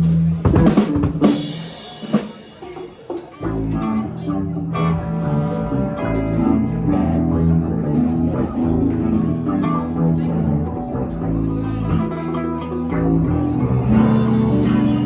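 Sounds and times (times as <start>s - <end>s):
drums: 0.0s - 3.9s, 11.0s - 12.4s, 13.0s - 15.0s
bass guitar: 0.0s - 15.0s
electric guitar: 0.0s - 15.0s.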